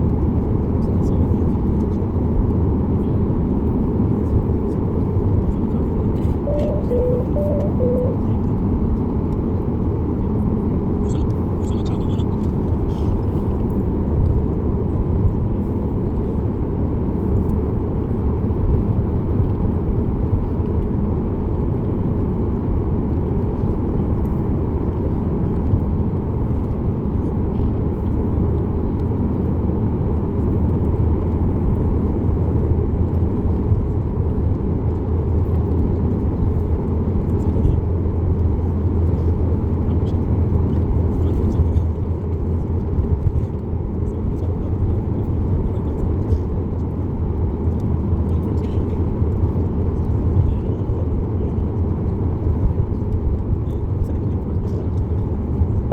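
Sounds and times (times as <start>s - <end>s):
jet engines rumbling: 6.0s - 8.5s.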